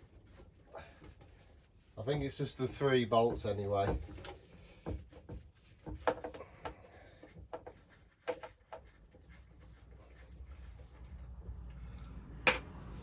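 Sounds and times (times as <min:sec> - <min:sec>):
hand tools clicking and knocking: 0:02.6 - 0:08.9.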